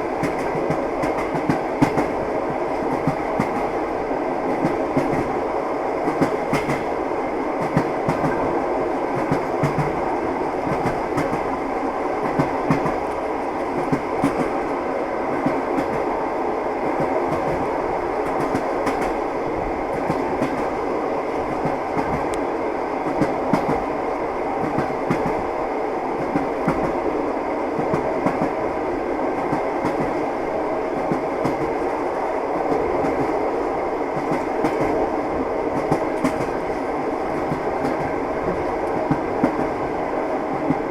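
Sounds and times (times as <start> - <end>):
train wheels clattering: 0.0 - 3.8, 6.1 - 6.9, 12.2 - 14.6, 35.7 - 39.9
railway carriage rumble: 0.0 - 40.9.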